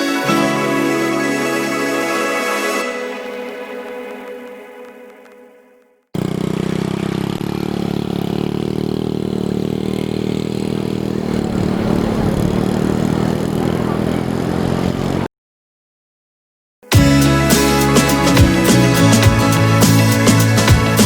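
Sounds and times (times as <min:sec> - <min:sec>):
engine running steadily: 0:06.2 - 0:15.3.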